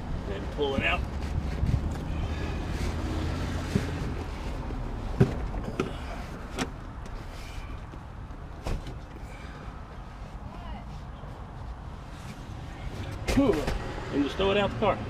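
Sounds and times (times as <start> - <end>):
seat cushion rustling and scraping: 0.3 - 9.1
knocks and thumps against interior: 0.7 - 2.1, 3.5 - 9.2.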